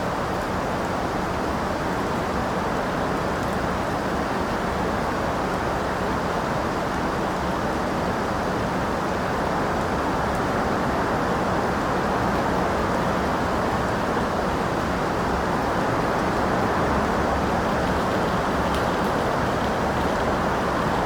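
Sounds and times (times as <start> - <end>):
steady rain hiss: 1.8 - 21.0.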